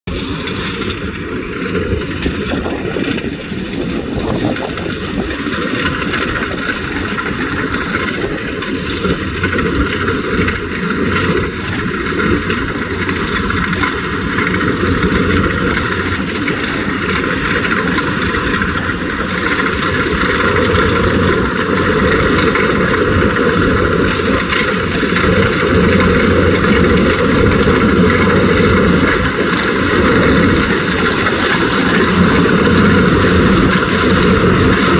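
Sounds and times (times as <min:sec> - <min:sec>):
combine harvester engine drone: 0:00.0 - 0:34.9.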